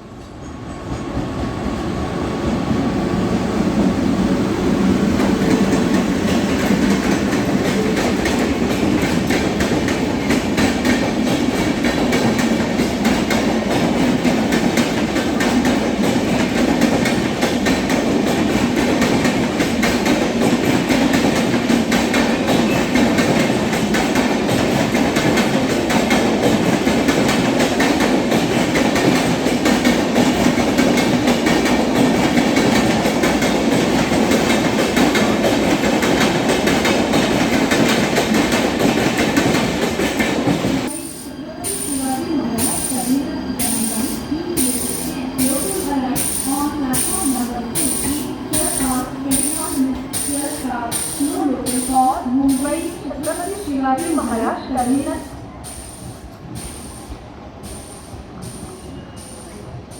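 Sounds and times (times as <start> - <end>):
train wheels clattering over rail joints: 5.2 - 40.9.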